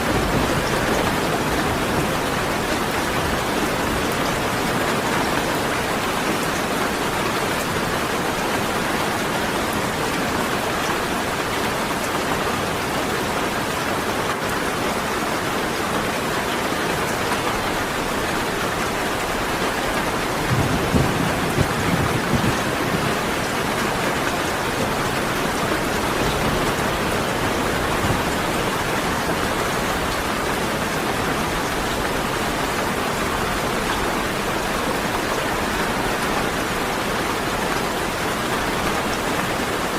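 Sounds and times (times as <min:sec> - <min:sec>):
steady rain falling: 0:00.0 - 0:39.9
low roll of thunder: 0:20.3 - 0:23.5.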